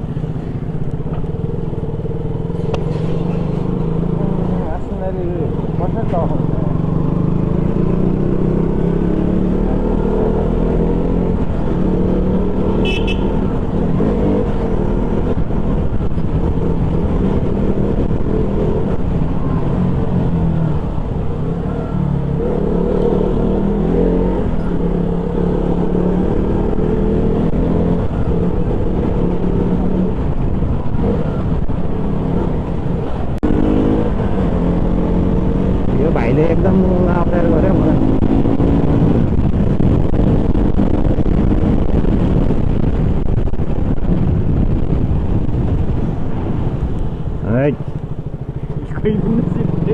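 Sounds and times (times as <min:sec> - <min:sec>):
motorcycle engine running: 0:00.0 - 0:23.7, 0:24.4 - 0:49.9.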